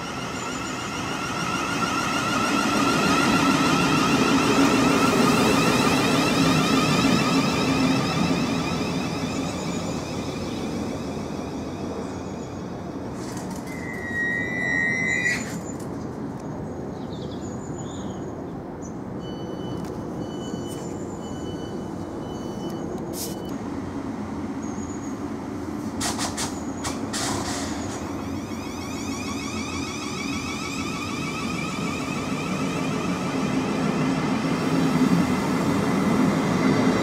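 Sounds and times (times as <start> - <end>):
high squeal: 0.0 - 15.8, 27.6 - 34.8
train wheels rumbling on rail: 0.0 - 37.0.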